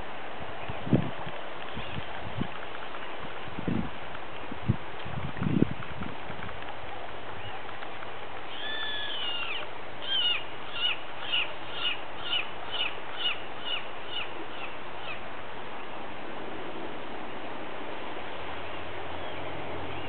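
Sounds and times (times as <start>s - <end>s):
steady background hiss: 6.2s - 20.0s
bird whistling song: 8.5s - 15.2s.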